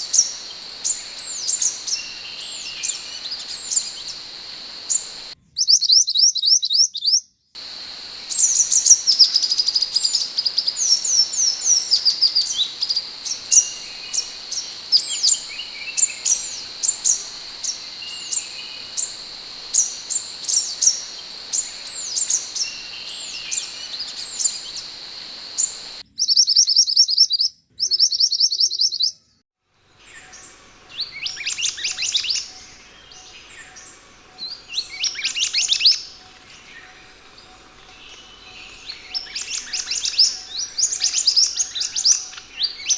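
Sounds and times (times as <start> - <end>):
bird calling in high whistles: 0.0 - 5.4, 7.6 - 26.0.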